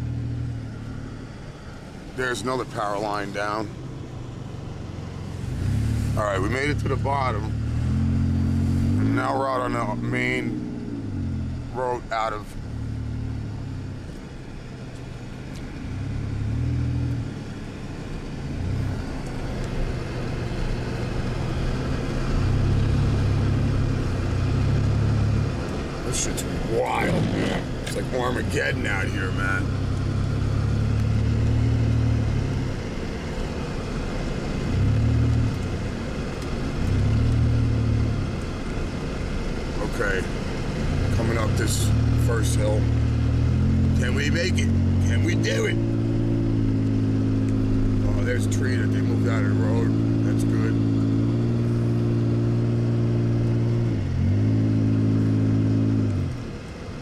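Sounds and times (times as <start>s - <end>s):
road noise: 0.0s - 57.0s
vehicle engine revving: 0.0s - 57.0s.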